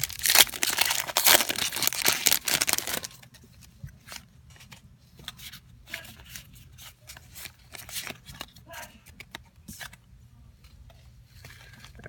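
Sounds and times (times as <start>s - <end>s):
foil wrapper crinkling and tearing: 0.0s - 3.2s
trading cards rustling: 0.0s - 3.2s.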